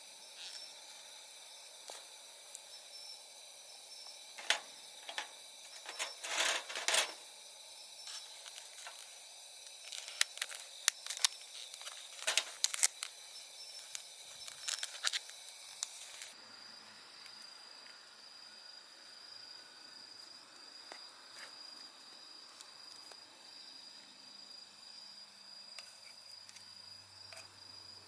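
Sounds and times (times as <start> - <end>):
insects trilling: 0.0 - 28.0
clicks and rustles of handling: 4.4 - 7.2, 9.7 - 13.2, 13.9 - 16.3.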